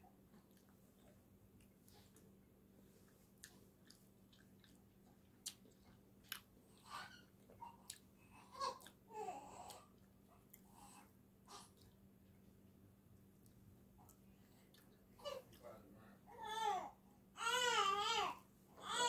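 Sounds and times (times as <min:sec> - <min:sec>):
chewing soft wrap: 0:00.2 - 0:08.2.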